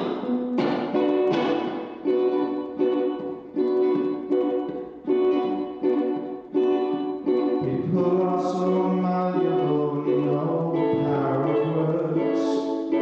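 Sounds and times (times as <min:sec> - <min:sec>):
strummed acoustic chords: 0:00.0 - 0:13.0
person singing long notes: 0:07.5 - 0:13.0.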